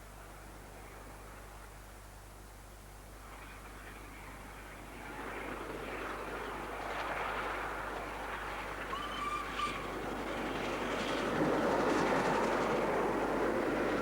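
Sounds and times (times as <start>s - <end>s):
train whistle: 8.9s - 9.9s.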